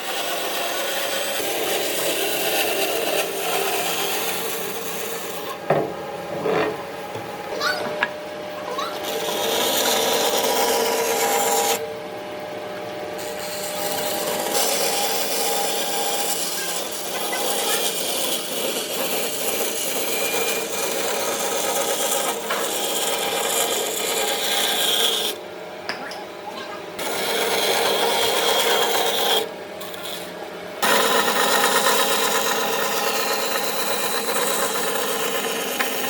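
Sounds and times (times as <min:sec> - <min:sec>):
abrasive tool scraping wood: 0:13.2 - 0:25.4, 0:27.0 - 0:36.0.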